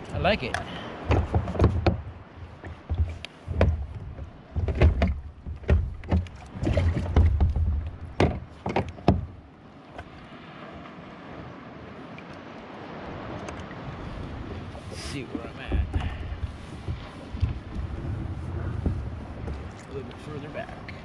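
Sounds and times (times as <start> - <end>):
wind and water hiss: 0.0 - 21.0
knocks on plastic kayak: 1.1 - 9.3.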